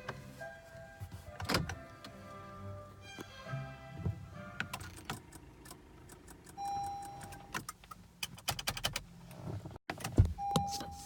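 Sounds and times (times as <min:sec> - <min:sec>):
car warning beep: 0:06.5 - 0:07.5, 0:10.3 - 0:11.0.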